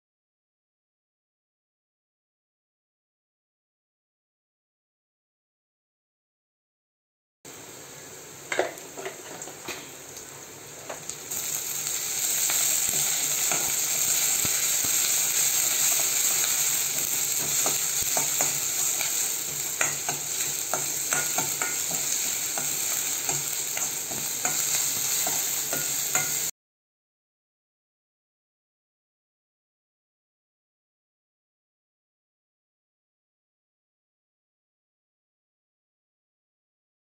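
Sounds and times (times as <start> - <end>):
food sizzling in hot oil: 7.5 - 26.5
spoon scraping and clinking on pan: 12.9 - 13.8, 17.4 - 26.5.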